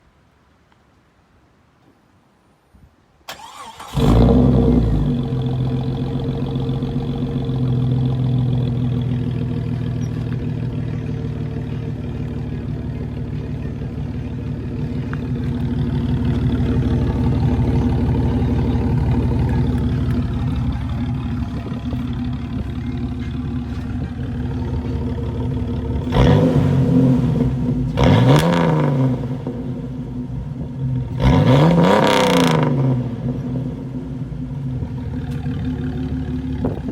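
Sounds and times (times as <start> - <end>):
starter cranking engine: 3.3 - 4.5, 13.2 - 26.4
car engine idling: 3.3 - 36.9.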